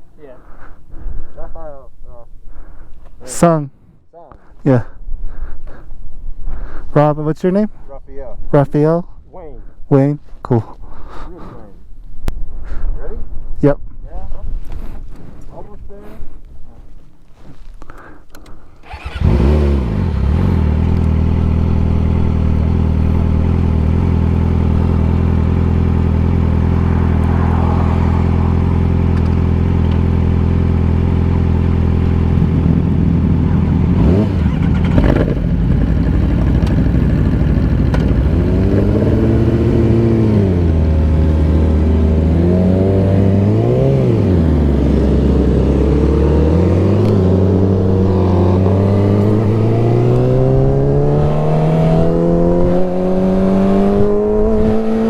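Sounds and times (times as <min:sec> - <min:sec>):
motorcycle engine revving: 0:18.8 - 0:55.0.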